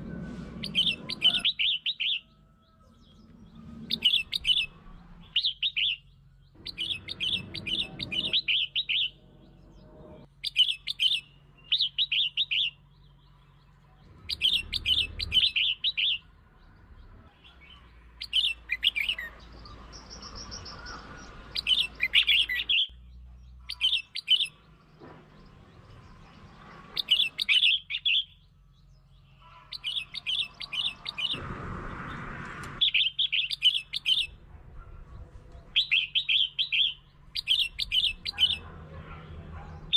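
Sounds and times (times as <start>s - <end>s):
bird warbling: 0.6s - 12.8s, 32.8s - 39.9s.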